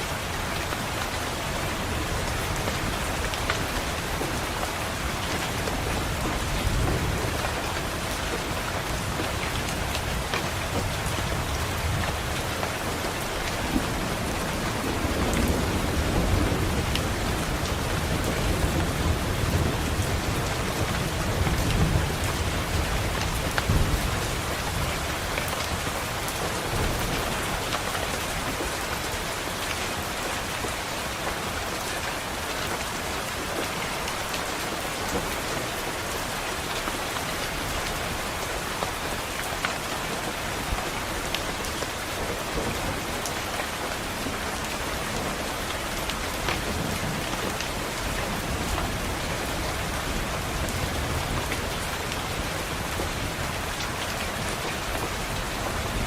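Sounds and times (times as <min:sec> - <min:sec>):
rain against a window: 0:00.0 - 0:56.0
rolling thunder rumble: 0:13.4 - 0:25.2.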